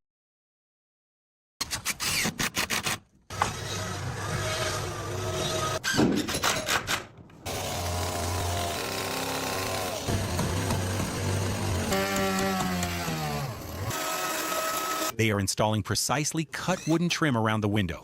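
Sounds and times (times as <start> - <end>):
small power tool motor: 7.5 - 15.1.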